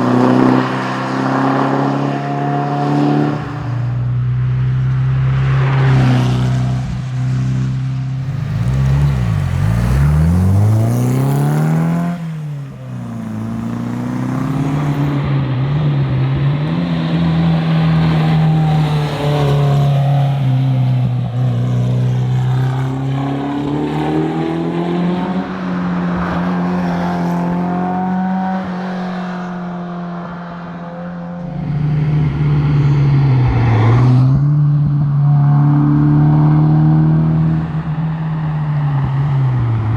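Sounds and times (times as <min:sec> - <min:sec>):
car engine revving: 0:00.0 - 0:04.2, 0:08.2 - 0:26.8.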